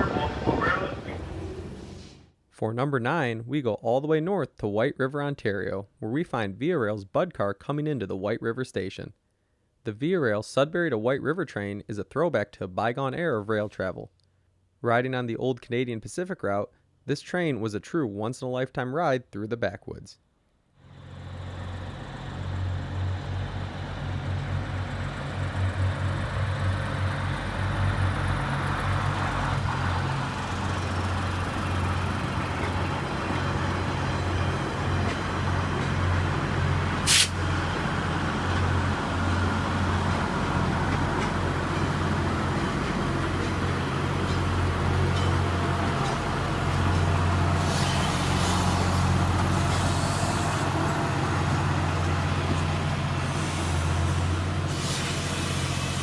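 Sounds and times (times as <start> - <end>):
diesel railcar engines droning: 0.0 - 2.2, 20.8 - 56.0
sharp hiss: 37.0 - 37.5, 53.3 - 56.0.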